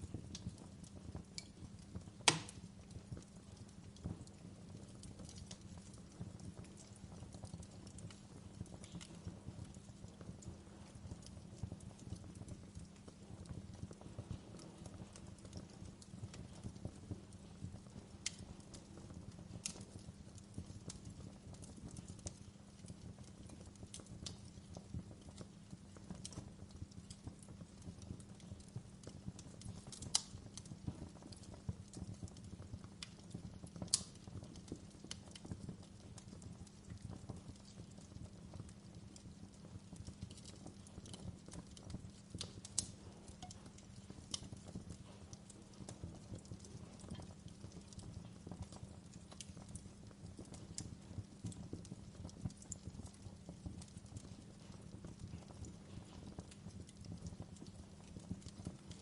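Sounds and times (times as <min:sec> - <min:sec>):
wood fire crackling: 0:00.0 - 0:59.0
fire popping sharply: 0:02.2 - 0:02.8.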